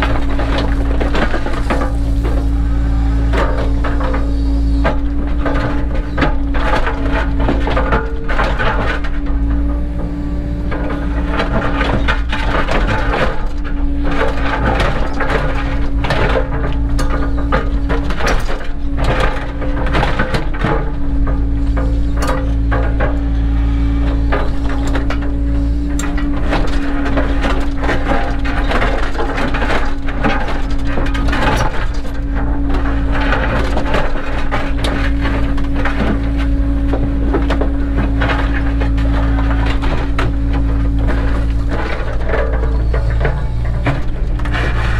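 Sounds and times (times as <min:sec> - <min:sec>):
excavator diesel engine running: 0:00.0 - 0:44.9
hydraulic whine: 0:00.0 - 0:44.9
stone and soil knocks and scrapes: 0:23.9 - 0:44.9.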